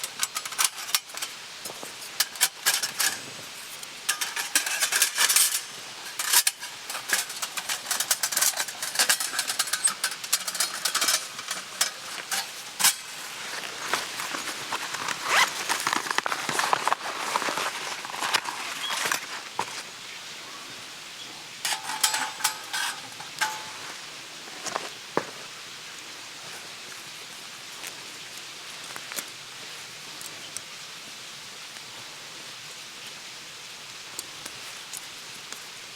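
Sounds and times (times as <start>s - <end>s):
food sizzling on griddle: 0.0s - 16.3s, 18.8s - 35.9s
metal utensils clinking: 0.0s - 19.8s, 21.6s - 24.1s.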